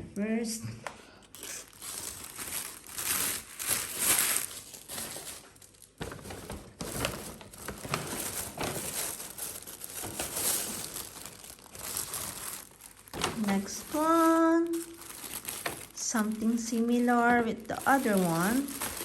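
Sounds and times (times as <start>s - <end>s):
packaging crinkling: 1.2s - 19.0s.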